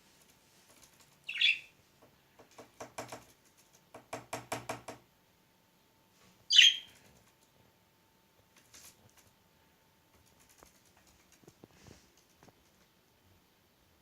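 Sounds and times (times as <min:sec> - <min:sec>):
sharp budgie chirp: 0:01.3 - 0:01.7, 0:06.5 - 0:06.9
bird pecking a toy ball: 0:02.4 - 0:04.8.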